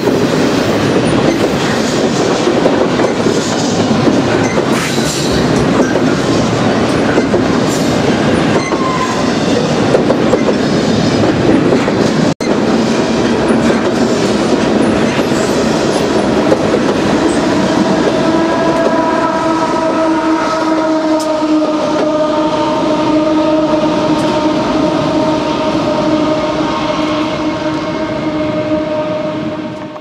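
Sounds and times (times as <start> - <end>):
train wheels clattering over rail joints: 0.0 - 19.0
diesel locomotives passing: 0.0 - 30.0.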